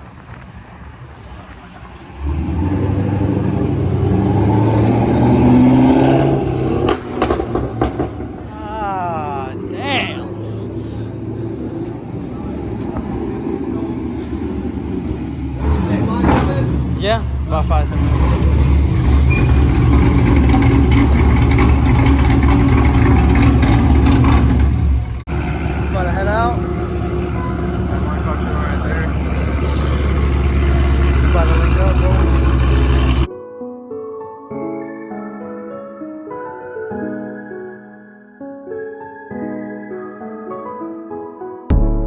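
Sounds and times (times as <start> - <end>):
car engine accelerating: 0.0 - 33.3.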